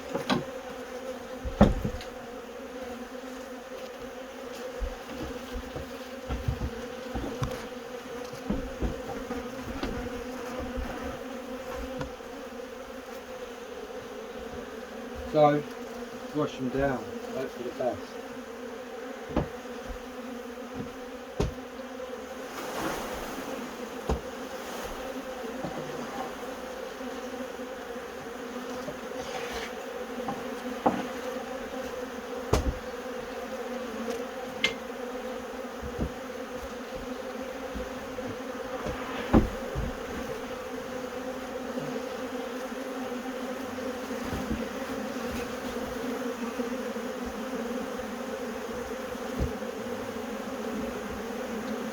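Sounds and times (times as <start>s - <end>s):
bees buzzing: 0.0s - 51.9s
sharp knocks: 1.4s - 2.1s, 19.3s - 20.1s, 20.8s - 21.6s, 24.1s - 24.3s, 32.5s - 32.9s, 37.7s - 40.5s.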